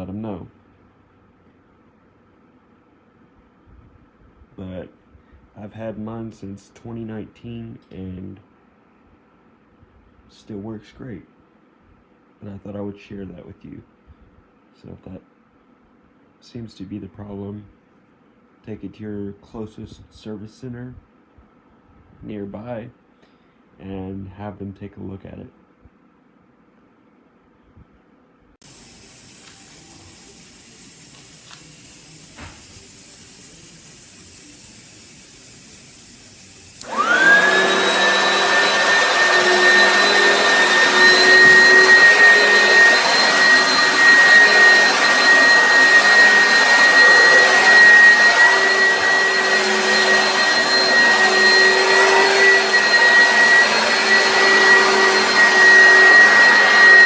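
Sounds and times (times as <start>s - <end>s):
vacuum cleaner motor whining: 28.6s - 57.0s.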